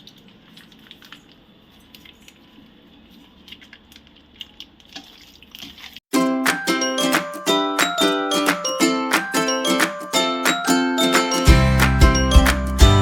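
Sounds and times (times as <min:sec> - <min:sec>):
wet squishing: 0:00.0 - 0:06.0
plucked-string background music: 0:06.1 - 0:13.0.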